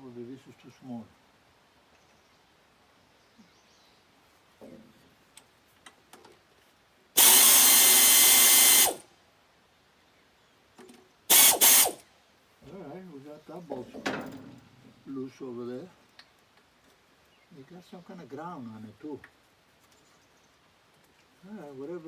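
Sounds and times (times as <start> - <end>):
handheld power tool running: 7.2 - 9.0, 11.3 - 12.0.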